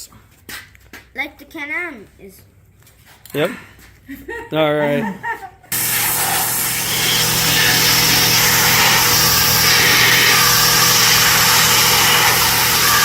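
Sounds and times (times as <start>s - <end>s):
small motor humming: 5.7s - 13.0s
loud hiss: 5.8s - 13.0s.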